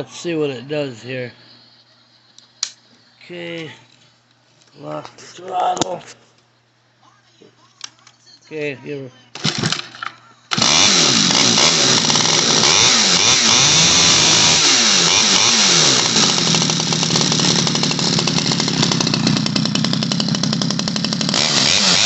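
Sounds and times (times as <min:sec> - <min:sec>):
chainsaw engine revving: 0:09.4 - 0:22.0.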